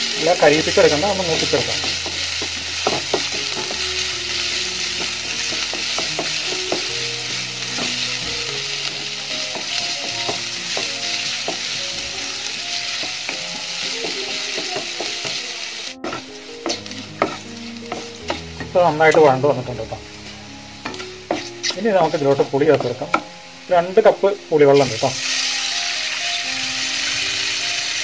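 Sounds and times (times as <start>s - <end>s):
ginger sizzling in hot oil: 0.0s - 28.0s
wooden spatula tapping pan: 0.7s - 11.8s, 12.8s - 15.4s, 16.0s - 19.3s, 20.8s - 23.4s.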